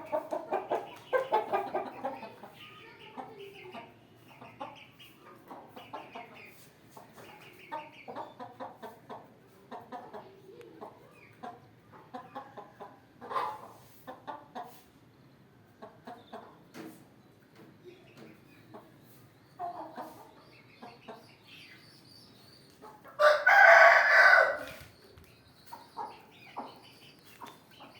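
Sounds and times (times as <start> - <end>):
chickens clucking: 0.0 - 27.9
rooster crowing: 23.2 - 24.8.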